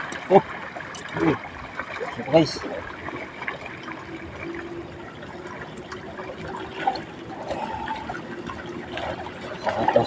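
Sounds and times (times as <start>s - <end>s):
water trickling and splashing: 0.0s - 10.0s.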